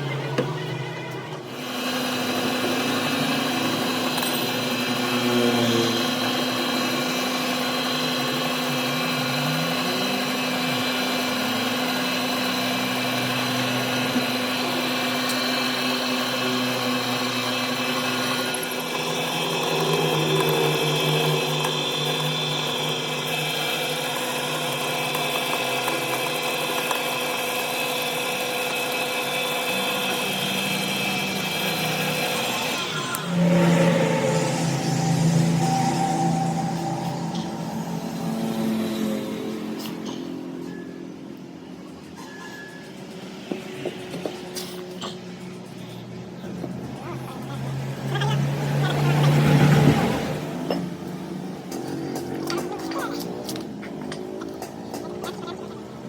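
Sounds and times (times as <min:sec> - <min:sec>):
power tool motor whine: 0:00.0 - 0:41.0.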